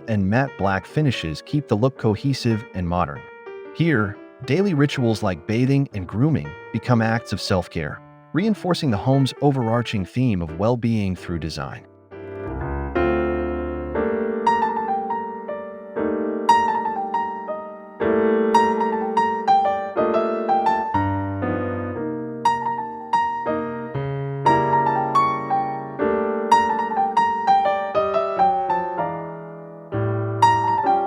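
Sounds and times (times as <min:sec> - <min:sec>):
slow solo piano piece: 0:11.6 - 0:31.0.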